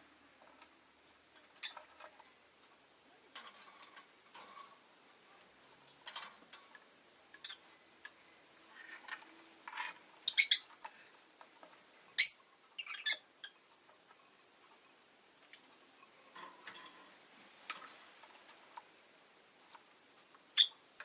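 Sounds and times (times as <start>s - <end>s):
lovebird chirping: 7.4s - 7.6s, 10.2s - 10.7s, 12.2s - 13.6s, 20.5s - 20.8s.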